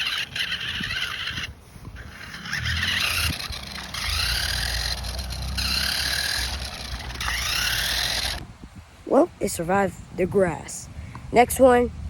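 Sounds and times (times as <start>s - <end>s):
toy car motor whining: 0.0s - 8.4s.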